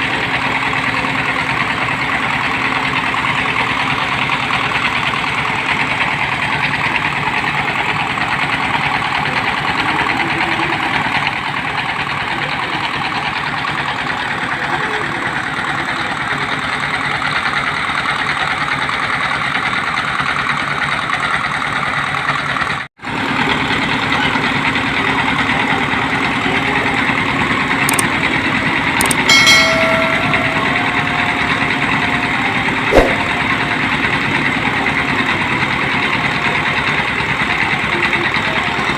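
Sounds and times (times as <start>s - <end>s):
short pitched sound: 29.0s - 33.8s
sharp knock: 32.9s - 33.4s.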